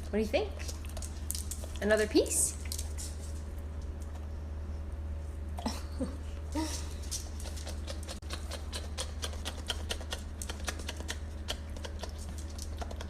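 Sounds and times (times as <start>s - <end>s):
dog chewing: 0.6s - 4.3s, 6.8s - 13.0s.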